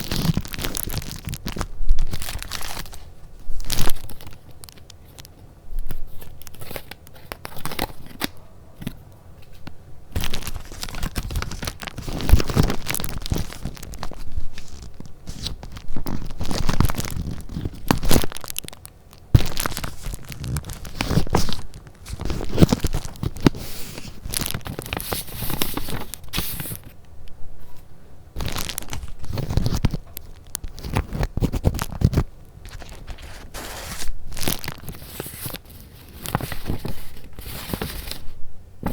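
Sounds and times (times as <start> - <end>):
paper crinkling and rustling: 0.0 - 27.0, 27.6 - 38.9
paper tearing: 30.6 - 38.2.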